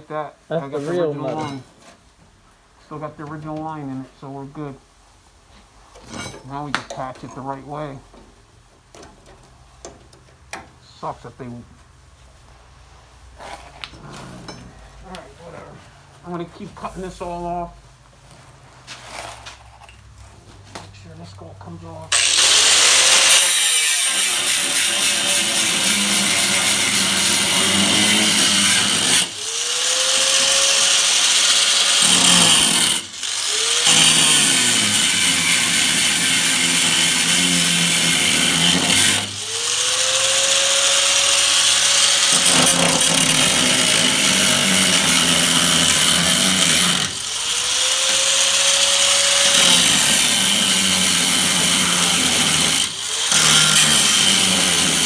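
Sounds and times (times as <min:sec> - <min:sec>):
power tool cutting sheet metal: 0:22.1 - 0:55.0.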